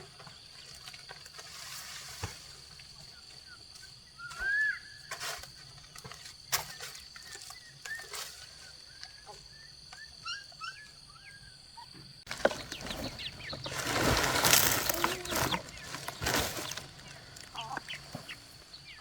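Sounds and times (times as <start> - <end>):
small birds chirping: 6.6 - 19.0
knocks and scrapes: 12.3 - 19.0
rustling: 12.3 - 19.0.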